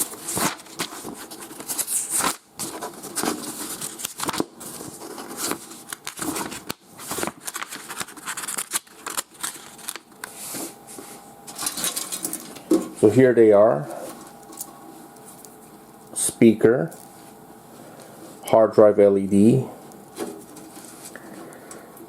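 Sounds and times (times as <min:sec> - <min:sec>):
paper pages rustling: 0:00.0 - 0:12.6, 0:20.2 - 0:21.2.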